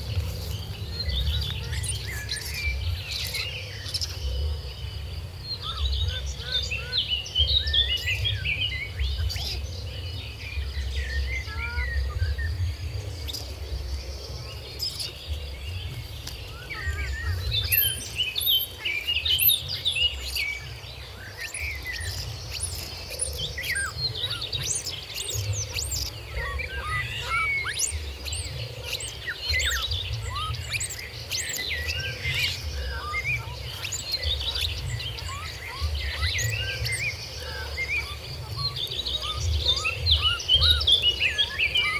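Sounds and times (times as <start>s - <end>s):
low rumble: 0.0s - 6.0s
birds chirping: 0.0s - 41.9s
high insect drone: 0.0s - 41.9s.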